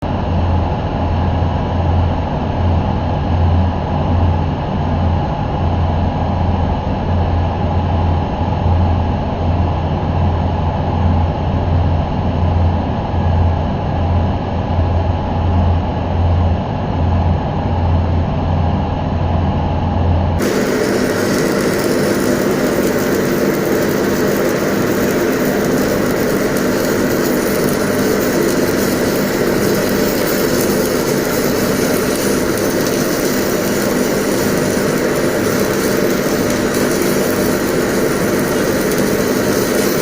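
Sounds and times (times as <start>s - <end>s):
welding arc crackling and hissing: 20.4s - 40.0s
welding machine pulsing hum: 20.4s - 40.0s.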